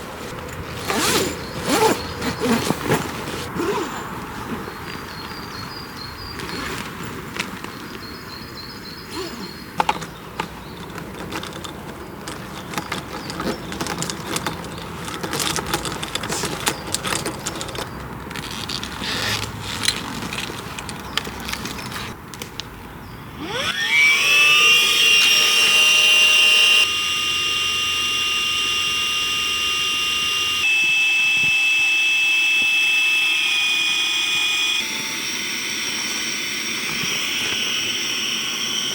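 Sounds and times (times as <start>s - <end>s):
electric air pump whine: 0.0s - 5.3s, 8.6s - 20.5s, 23.3s - 38.9s
gear being handled: 0.0s - 5.5s, 9.1s - 22.2s.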